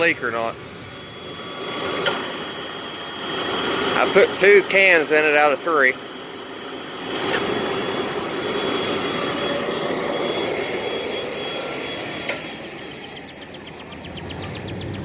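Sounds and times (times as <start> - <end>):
sharp click: 2.0 - 2.2.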